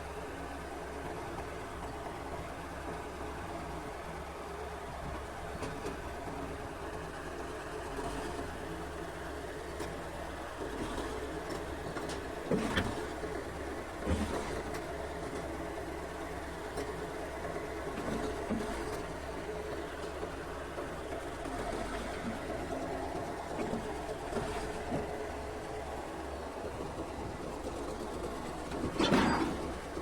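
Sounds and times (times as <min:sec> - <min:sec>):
heavy diesel engine running: 0:00.0 - 0:30.0
short clunks: 0:10.8 - 0:13.2, 0:14.0 - 0:14.9, 0:28.6 - 0:30.0.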